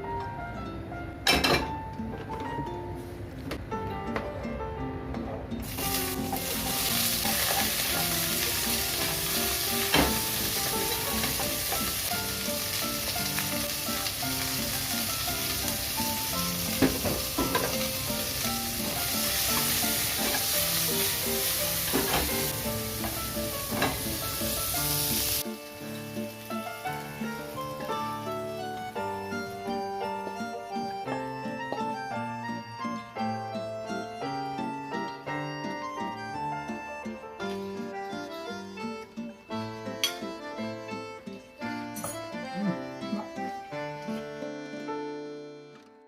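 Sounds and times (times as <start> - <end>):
background music: 0.0 - 46.0
food sizzling in a pan: 5.6 - 30.3.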